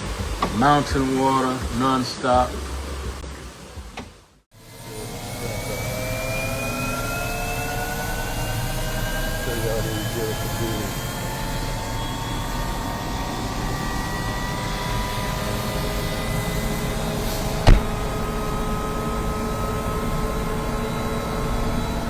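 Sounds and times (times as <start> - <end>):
helicopter engine running: 4.6 - 22.0
sharp click: 17.7 - 17.9.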